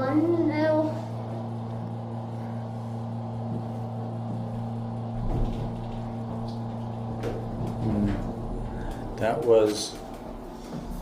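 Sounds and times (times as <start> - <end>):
elevator machine hum: 0.0 - 11.0
deep rumble: 4.5 - 11.0.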